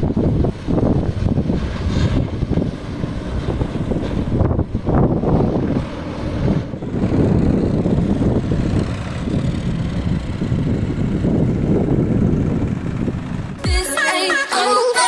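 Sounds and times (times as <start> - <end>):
diesel tractor engine rumbling: 0.0 - 14.0.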